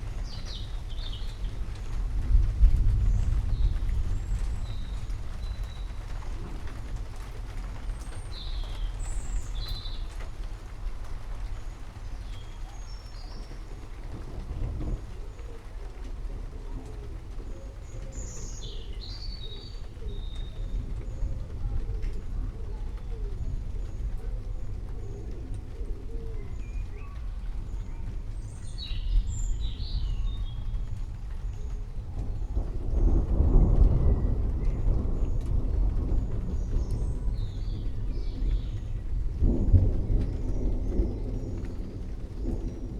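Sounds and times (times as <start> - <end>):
low continuous rumble: 0.0 - 42.9
steady rain: 0.0 - 42.9
birds chirping: 16.7 - 42.9.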